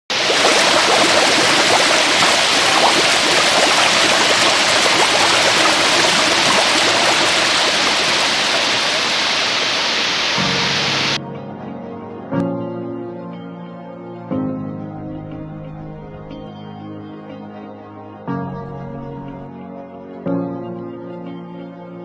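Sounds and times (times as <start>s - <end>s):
water splashing: 0.1s - 11.2s, 15.0s - 16.5s, 18.5s - 19.5s
soft music: 10.4s - 22.0s.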